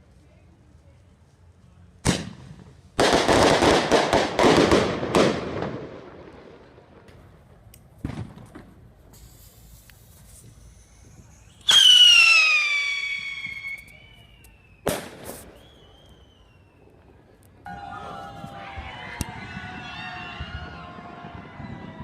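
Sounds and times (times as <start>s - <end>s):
firework bangs: 2.0s - 16.5s
shrill firework whistle: 10.5s - 17.0s.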